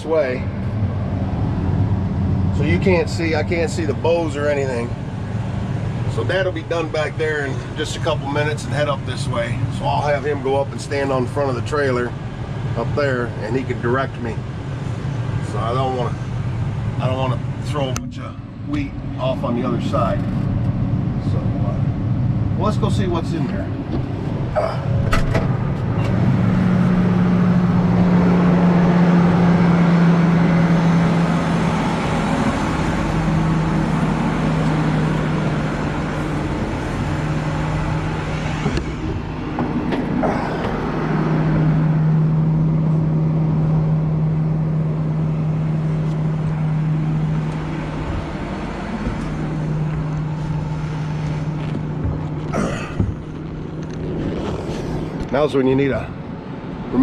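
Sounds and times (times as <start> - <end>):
tractor engine running: 22.0 - 56.8.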